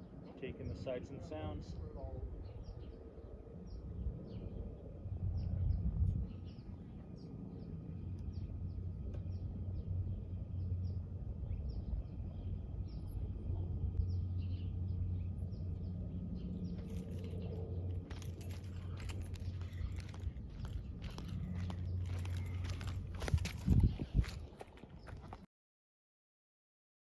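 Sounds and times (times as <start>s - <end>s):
steady low rumble: 0.0s - 25.5s
bird chirping: 14.0s - 25.4s
sharp clicks and crunches: 16.8s - 25.4s.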